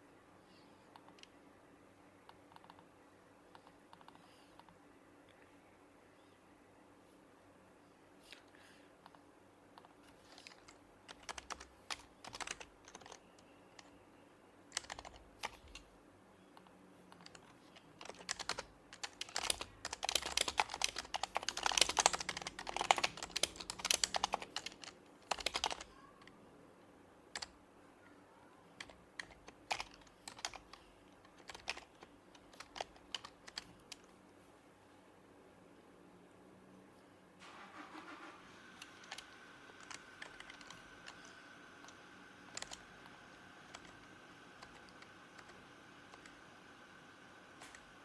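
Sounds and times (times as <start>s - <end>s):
keyboard typing: 9.8s - 14.0s, 14.7s - 15.9s, 16.6s - 26.4s, 27.3s - 27.6s, 28.8s - 34.1s, 38.0s - 48.0s.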